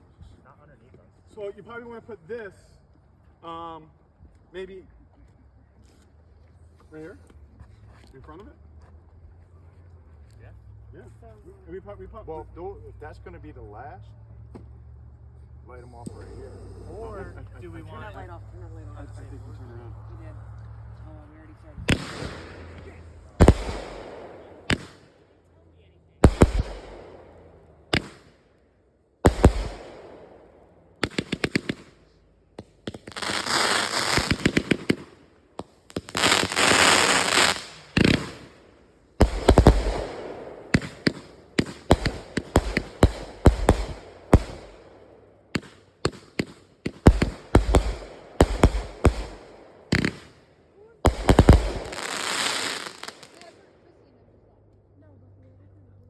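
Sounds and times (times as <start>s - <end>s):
firework bangs: 21.8s - 25.4s, 26.2s - 28.4s, 29.2s - 53.6s
firework crackling: 21.8s - 25.4s, 26.2s - 28.4s, 29.2s - 53.6s.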